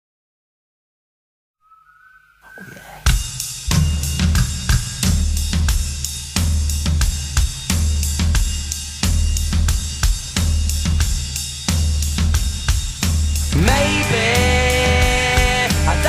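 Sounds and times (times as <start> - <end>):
cymbals: 2.5 - 16.0
kick drum: 3.1 - 5.9, 6.5 - 13.2
snare drum: 3.1 - 13.8.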